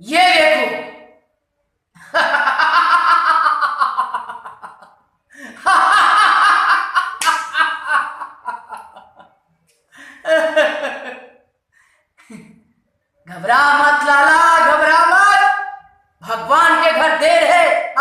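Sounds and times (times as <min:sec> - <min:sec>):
man laughing theatrically: 0:02.0 - 0:09.3, 0:10.0 - 0:11.4
sharp slap: 0:07.2 - 0:07.6.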